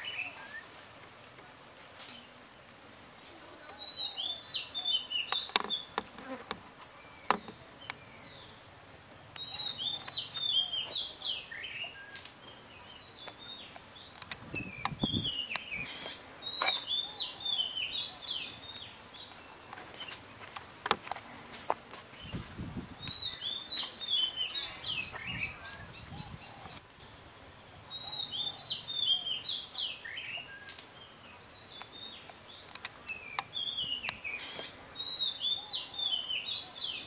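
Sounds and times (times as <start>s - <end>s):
rapid chirping bird song: 7.1s - 20.2s, 22.2s - 37.0s.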